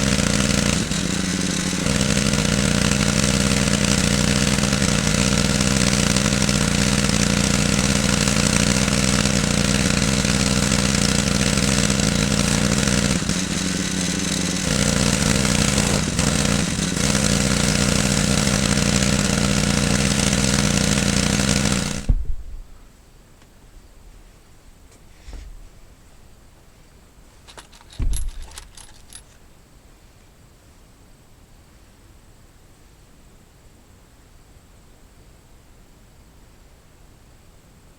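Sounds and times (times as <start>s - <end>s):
engine running: 0.0s - 22.2s, 27.5s - 29.3s.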